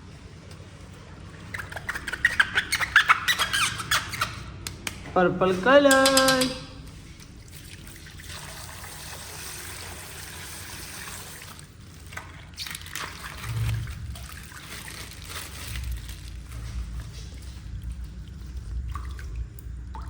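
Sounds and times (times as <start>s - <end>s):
water trickling from plastic bag: 6.8s - 20.0s
plastic crinkling: 11.4s - 17.9s.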